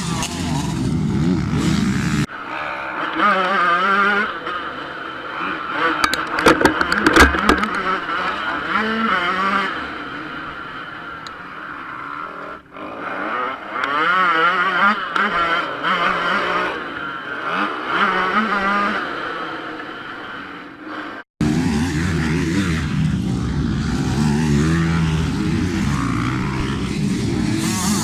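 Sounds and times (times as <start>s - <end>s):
two-stroke engine revving: 0.0s - 28.0s
sharp knocks: 6.0s - 8.0s.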